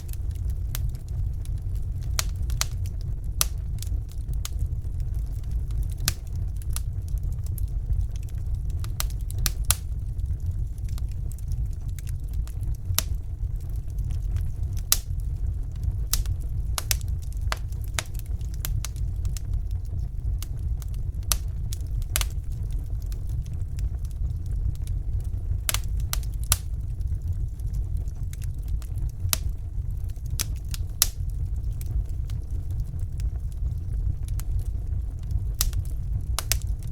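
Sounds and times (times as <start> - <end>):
fire crackling and popping: 0.0 - 36.9
low rumble of fire: 0.0 - 36.9.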